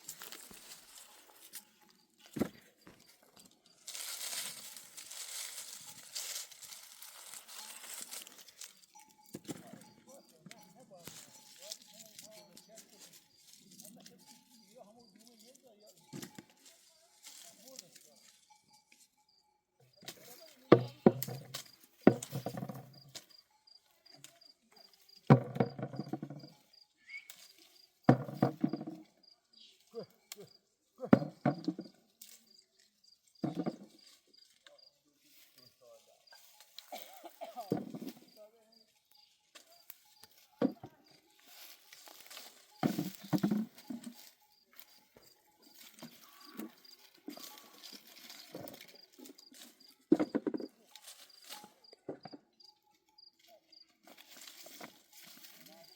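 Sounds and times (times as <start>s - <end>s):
quiet rustling: 0.0s - 19.2s, 31.2s - 55.9s
insect chirping: 20.7s - 55.9s
knocks and thuds: 25.3s - 26.5s.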